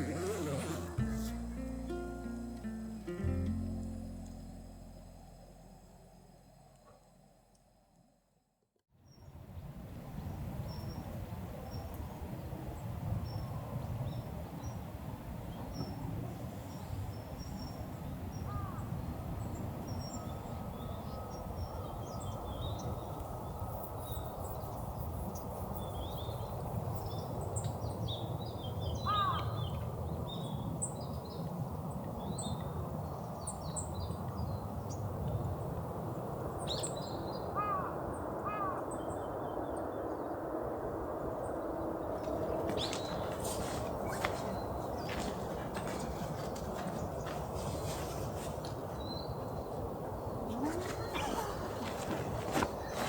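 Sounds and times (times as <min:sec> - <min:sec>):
low rushing background: 0:00.0 - 0:07.9
small birds chirping: 0:42.0 - 0:53.0.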